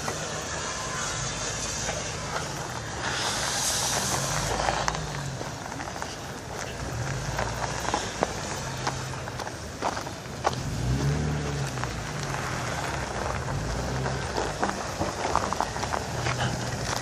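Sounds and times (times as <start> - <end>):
car engines running slowly: 0.0 - 17.0
tyre hiss: 0.1 - 6.4.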